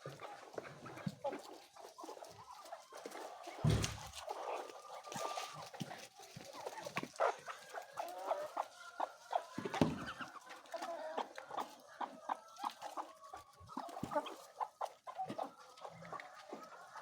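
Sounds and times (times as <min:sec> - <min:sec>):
low thump: 0:03.6 - 0:04.0.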